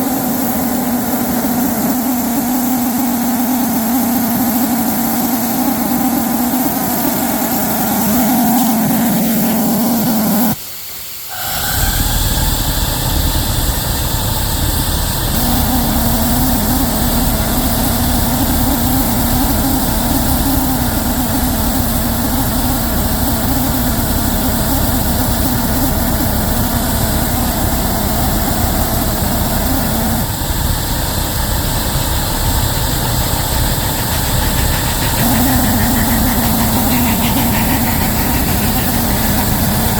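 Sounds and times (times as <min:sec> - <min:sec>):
locomotive running: 0:30.5 - 0:39.9
heavy low rumble: 0:32.6 - 0:39.9.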